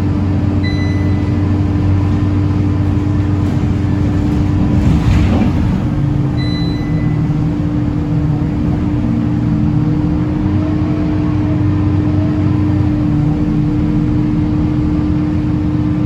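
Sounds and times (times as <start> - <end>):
bus diesel engine running: 0.0 - 16.0
short high beep: 0.6 - 1.3.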